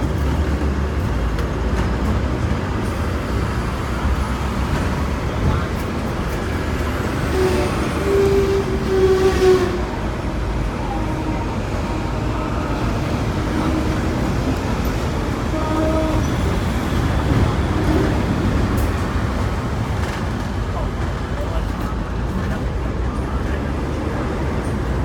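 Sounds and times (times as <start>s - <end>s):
tram rumbling on rails: 0.0s - 25.0s
tram whining tone: 2.5s - 21.3s.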